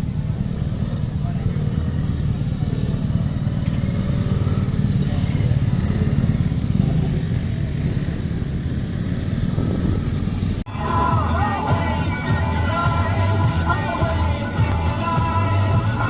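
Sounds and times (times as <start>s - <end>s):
steady low rumble: 4.4s - 16.0s
music: 10.7s - 16.0s.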